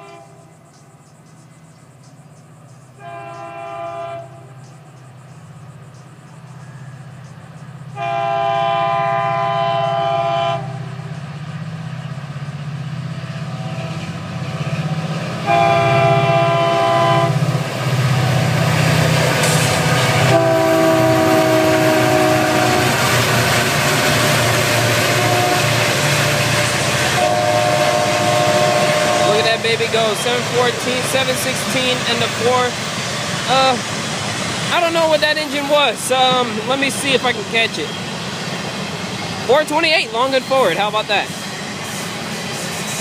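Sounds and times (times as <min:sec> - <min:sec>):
locomotive air horn blasts: 0:00.0 - 0:00.4, 0:03.0 - 0:04.5, 0:08.0 - 0:10.8, 0:15.4 - 0:17.4, 0:20.2 - 0:23.1, 0:25.0 - 0:25.9, 0:27.1 - 0:29.8
locomotive engines droning: 0:00.0 - 0:43.0
train wheels rumbling on rails: 0:00.0 - 0:43.0.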